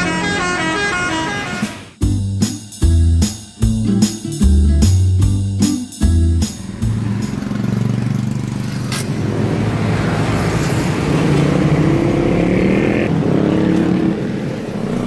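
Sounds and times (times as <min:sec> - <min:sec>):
traffic noise: 0:00.0 - 0:02.0, 0:06.3 - 0:15.0.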